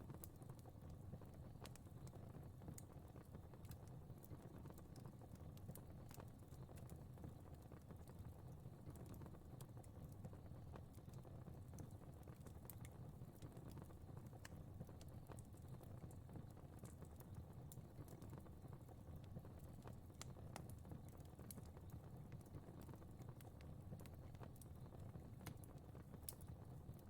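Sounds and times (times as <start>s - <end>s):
fire crackling and popping: 0.0s - 27.0s
low rumble of flames: 0.0s - 27.0s.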